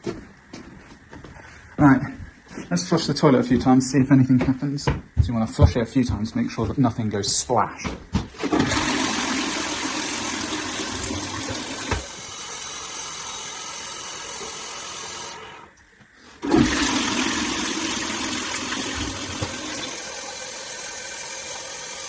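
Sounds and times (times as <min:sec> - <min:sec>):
knock: 0:04.4 - 0:05.8
toilet flushing: 0:08.4 - 0:15.8, 0:16.4 - 0:22.0.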